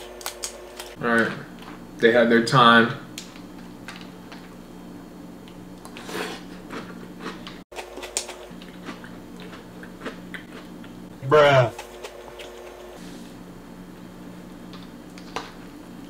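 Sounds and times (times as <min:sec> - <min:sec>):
person chewing cereal: 0:05.8 - 0:11.0.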